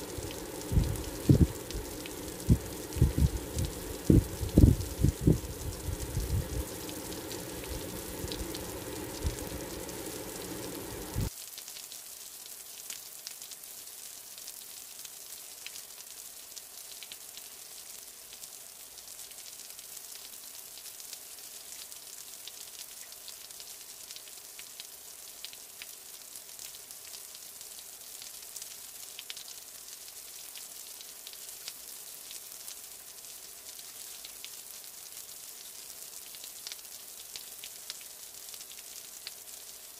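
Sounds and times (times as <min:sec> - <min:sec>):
chicken frying in hot oil: 0:00.0 - 0:39.9
low rumble: 0:00.1 - 0:11.3.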